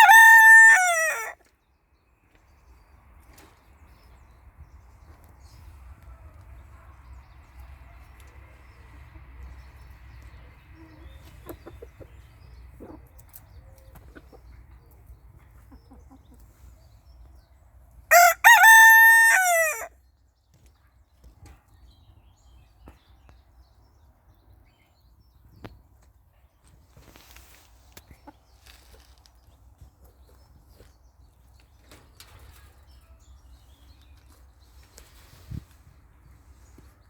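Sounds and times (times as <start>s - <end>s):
rooster crowing: 0.0s - 1.4s, 18.1s - 19.9s.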